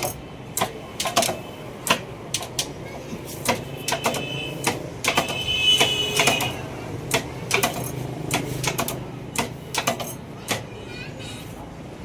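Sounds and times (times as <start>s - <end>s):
clicks and knocks: 3.4s - 10.7s.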